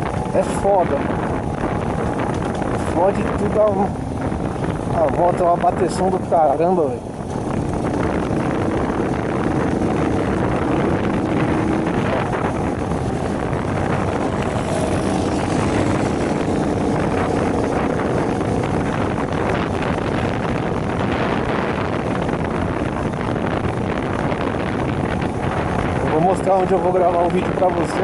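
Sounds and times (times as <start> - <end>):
wind noise on microphone: 0.0 - 28.0
moped engine running: 7.0 - 26.1.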